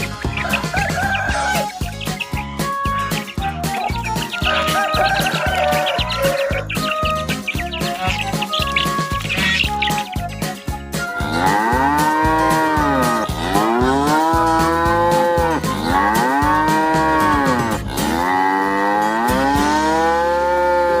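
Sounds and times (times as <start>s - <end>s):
cow mooing: 11.2s - 21.0s.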